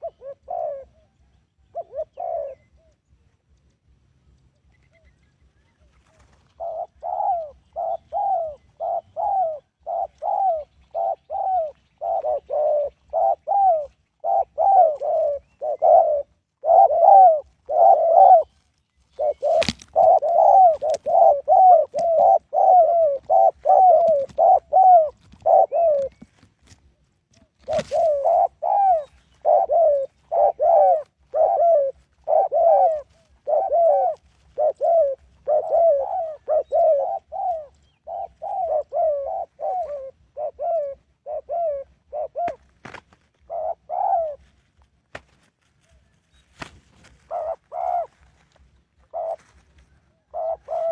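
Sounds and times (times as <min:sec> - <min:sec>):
dove cooing: 0:00.0 - 0:03.0, 0:04.5 - 0:44.7, 0:45.8 - 0:50.9.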